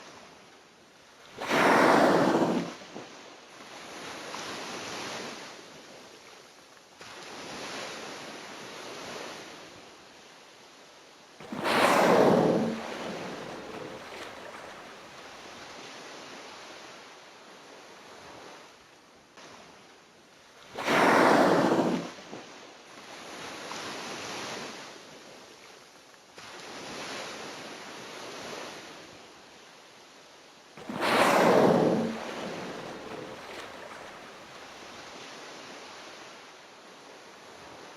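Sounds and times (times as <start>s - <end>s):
whale blowing: 1.4s - 2.9s, 11.4s - 15.5s, 20.8s - 22.2s, 30.8s - 35.0s
sea water washing: 1.4s - 3.2s, 11.4s - 15.8s, 20.7s - 22.5s, 30.8s - 35.3s.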